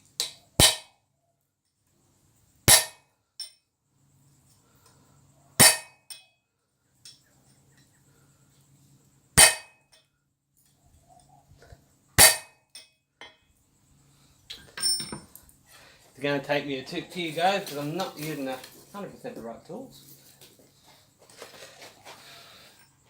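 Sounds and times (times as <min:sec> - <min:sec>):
hammer blows on steel punch: 0:02.7 - 0:03.0, 0:05.6 - 0:06.2, 0:09.4 - 0:09.8, 0:12.2 - 0:12.6.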